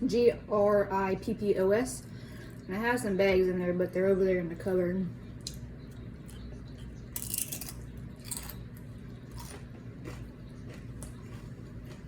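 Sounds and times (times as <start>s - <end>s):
low room hum: 0.0s - 12.0s
crunching on chips: 6.8s - 12.0s.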